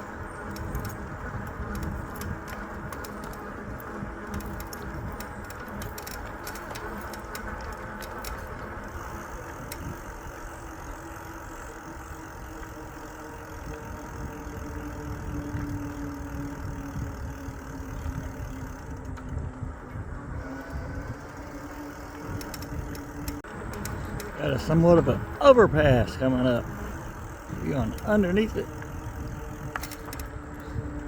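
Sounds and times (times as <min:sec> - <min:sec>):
electric bike motor hum: 0:00.0 - 0:31.0
wind on microphone: 0:13.6 - 0:31.0.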